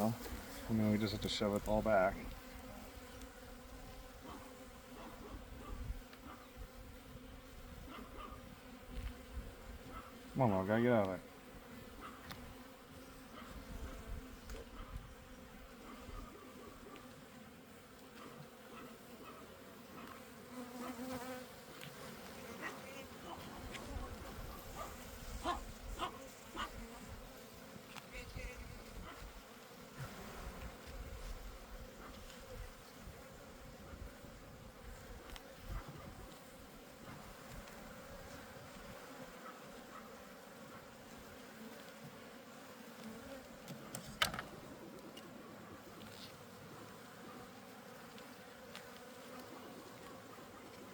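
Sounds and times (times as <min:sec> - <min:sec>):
bees buzzing: 0:19.8 - 0:35.6.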